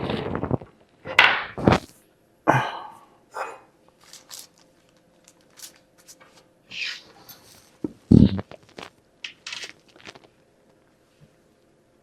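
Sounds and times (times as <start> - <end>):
plastic parts clicking and rustling: 4.0 - 6.4, 8.7 - 10.3.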